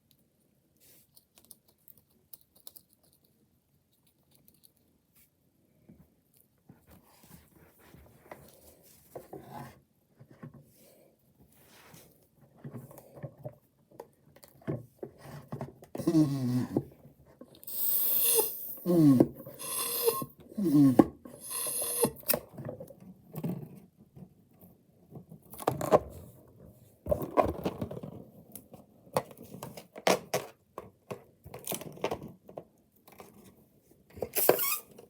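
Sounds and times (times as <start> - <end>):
short squeaks: 34.3 - 35.0.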